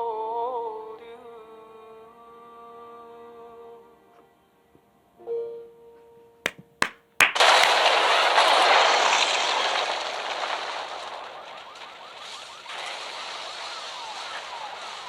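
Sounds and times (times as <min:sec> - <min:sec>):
sharp knocks: 0:06.5 - 0:07.8
car crash with shattering debris: 0:07.4 - 0:15.0.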